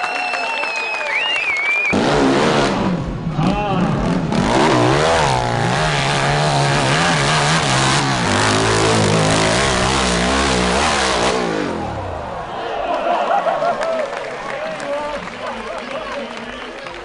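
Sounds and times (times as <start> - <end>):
motorcycle engine revving: 1.9 - 12.3.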